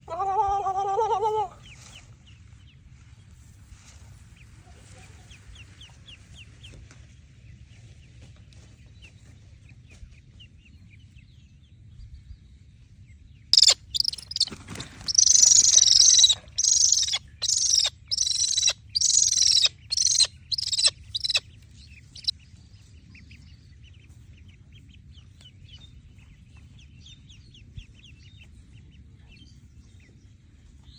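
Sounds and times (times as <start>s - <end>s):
duckling peeping: 13.6s - 22.4s.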